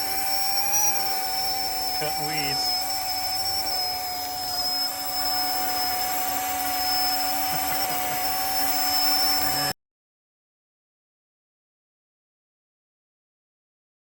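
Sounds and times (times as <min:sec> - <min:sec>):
electric motors whining: 0:00.0 - 0:09.8.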